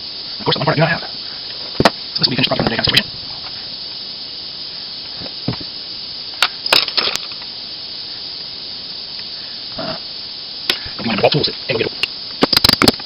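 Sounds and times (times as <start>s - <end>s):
steady hiss: 0.0s - 13.0s
small parts clicking and tapping: 6.4s - 7.5s, 11.5s - 13.0s.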